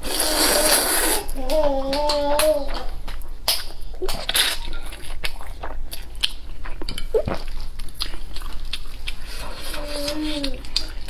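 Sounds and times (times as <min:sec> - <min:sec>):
biting and chewing food: 0:01.9 - 0:11.0
wet clicks and smacks: 0:05.2 - 0:09.2.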